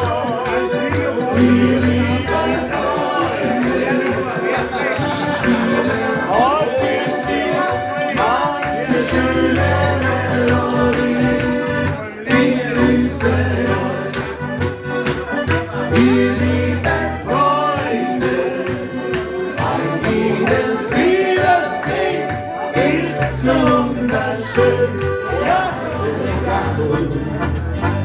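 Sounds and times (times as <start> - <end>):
person singing: 0.0 - 11.6
live band playing upbeat song: 0.0 - 28.0.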